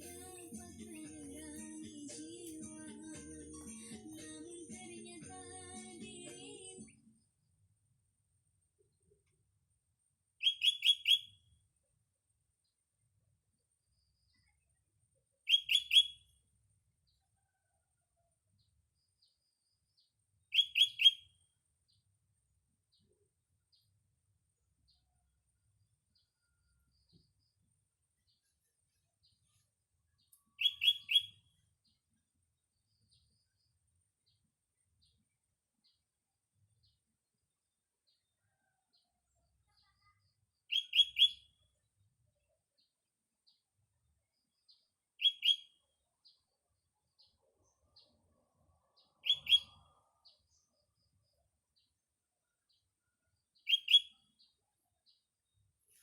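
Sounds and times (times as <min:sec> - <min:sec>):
bird singing: 0:10.4 - 0:11.4, 0:15.5 - 0:16.2, 0:20.5 - 0:21.3, 0:30.2 - 0:32.0, 0:40.7 - 0:41.6, 0:44.5 - 0:46.5, 0:49.0 - 0:51.9, 0:52.6 - 0:55.3.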